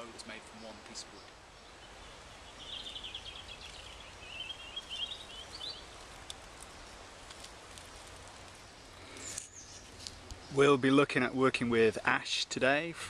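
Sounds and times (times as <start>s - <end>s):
outdoor background noise: 0.0s - 13.0s
songbird warbling and trilling: 0.4s - 7.1s
faint ticks: 4.8s - 10.4s.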